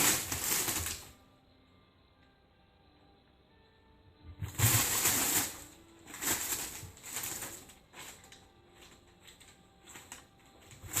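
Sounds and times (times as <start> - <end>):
paper crinkling and rustling: 0.0 - 1.1, 4.4 - 11.0.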